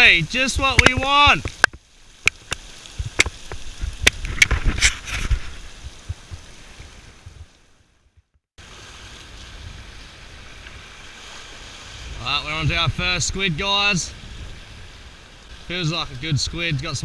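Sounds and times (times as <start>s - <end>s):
surf on rocky shore: 0.0s - 8.0s, 8.6s - 17.0s
wind: 0.0s - 17.0s
sharp knocks and clicks: 0.7s - 4.6s.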